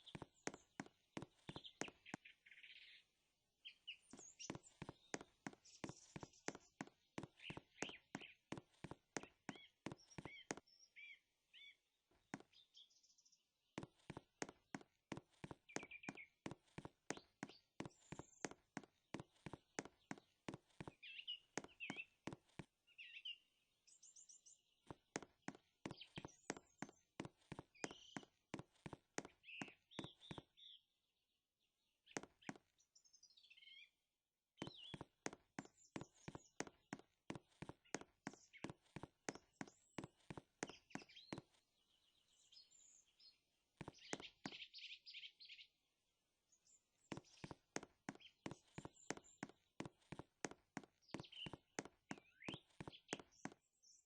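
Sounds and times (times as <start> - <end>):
footsteps walking: 0.0 - 2.2, 4.1 - 10.6, 13.8 - 21.0, 21.6 - 22.7, 24.9 - 30.4, 34.6 - 41.6, 47.1 - 53.6
birds chirping: 0.0 - 31.0, 34.6 - 45.8, 46.5 - 54.0.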